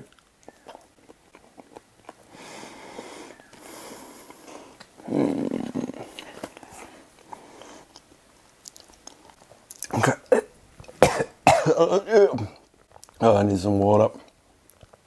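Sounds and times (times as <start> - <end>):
man chewing close to microphone: 0.0 - 11.0, 12.6 - 13.2, 14.2 - 15.0
mouth and throat sounds: 0.0 - 11.6.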